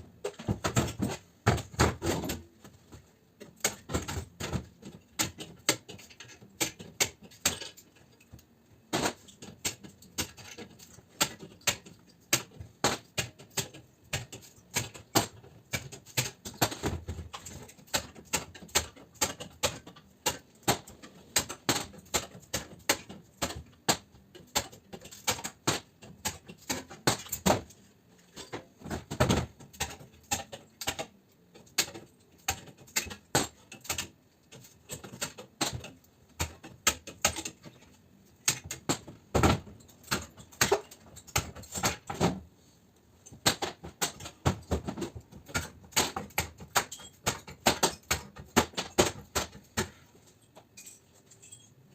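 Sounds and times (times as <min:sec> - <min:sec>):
sharp clicks and knocks of tools: 0:03.4 - 0:42.4.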